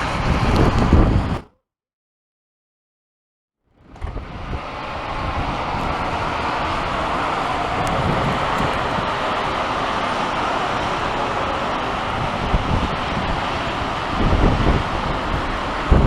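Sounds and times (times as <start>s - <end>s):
wind buffeting microphone: 3.8s - 10.0s, 12.0s - 16.0s.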